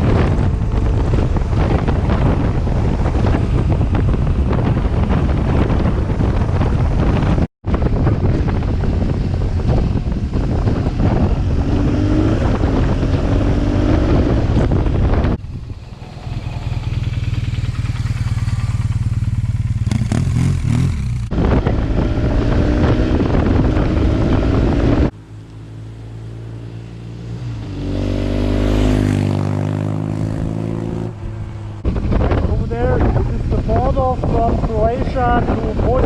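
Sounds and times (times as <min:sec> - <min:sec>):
motorcycle engine running: 0:00.0 - 0:25.2.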